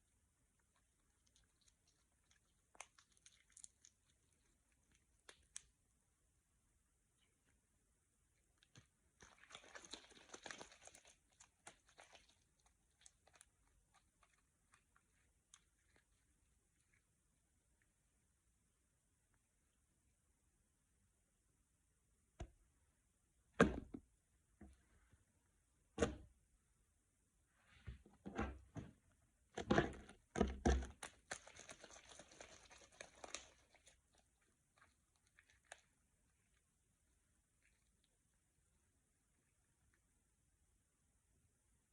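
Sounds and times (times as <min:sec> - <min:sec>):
slime squelching: 0:00.0 - 0:18.1, 0:28.3 - 0:40.2.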